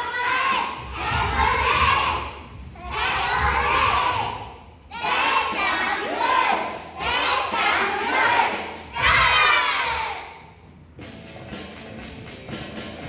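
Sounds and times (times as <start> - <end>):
young children shouting: 0.0 - 10.4.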